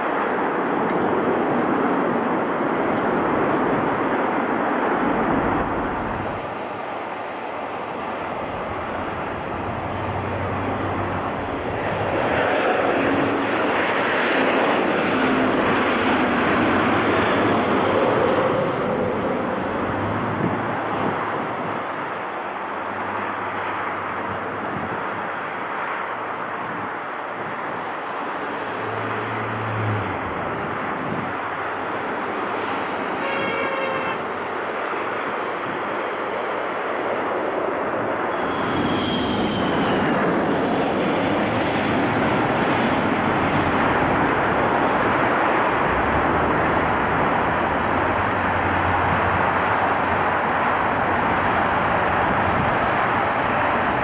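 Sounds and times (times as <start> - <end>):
engine and traffic roar: 0.0 - 54.0.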